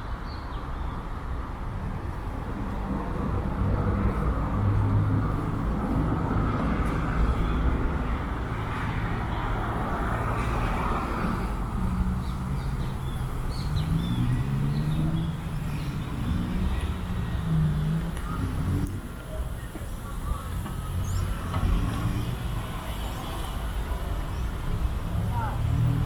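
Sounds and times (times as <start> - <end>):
vehicles passing with tyre noise: 0.0 - 26.0.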